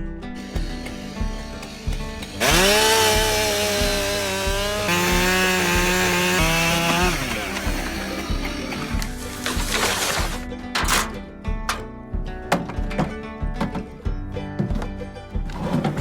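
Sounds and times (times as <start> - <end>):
background music with a beat: 0.0 - 16.0
chainsaw revving: 0.3 - 11.1.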